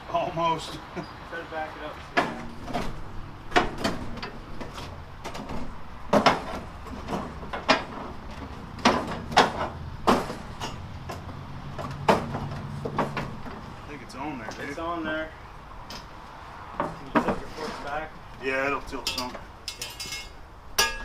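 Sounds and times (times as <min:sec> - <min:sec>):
metallic clunks and knocks: 0:02.1 - 0:13.7, 0:15.8 - 0:18.0.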